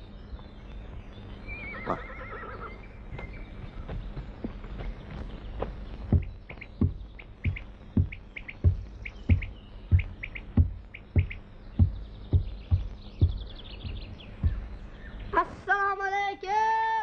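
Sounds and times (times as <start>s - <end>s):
small birds chirping: 0.0s - 17.0s
dull low thumps: 2.9s - 15.4s.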